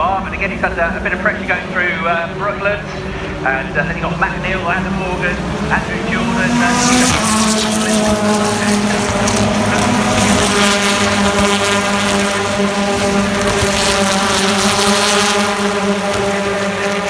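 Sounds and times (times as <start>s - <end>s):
racing cars passing: 0.0s - 17.0s.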